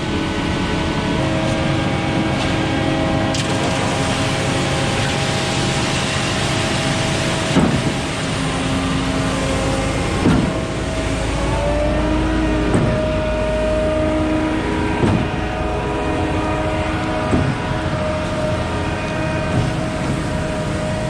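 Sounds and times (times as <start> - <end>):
truck engine and hydraulic hum: 0.0 - 21.0
concrete pump clunking: 3.3 - 13.3, 14.7 - 21.0.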